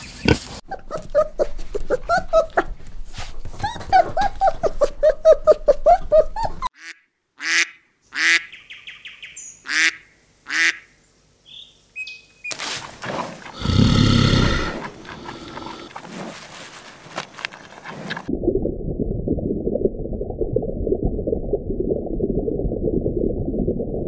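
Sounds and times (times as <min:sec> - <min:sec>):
puppies whimpering: 0:03.6 - 0:06.7
duck quacking: 0:09.7 - 0:10.9.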